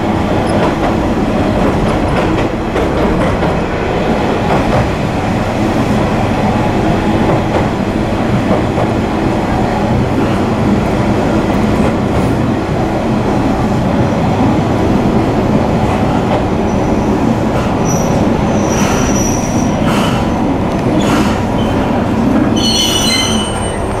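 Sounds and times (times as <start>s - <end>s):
railcar engine and wheels rumbling: 0.0s - 24.0s
wheels squealing: 22.5s - 24.0s.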